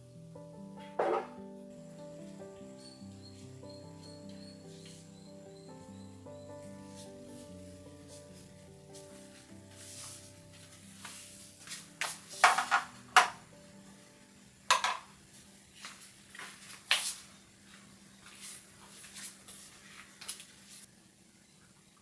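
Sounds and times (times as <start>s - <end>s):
faint background music: 0.0s - 21.6s
hard objects knocking and clinking: 12.4s - 13.4s, 14.7s - 15.1s.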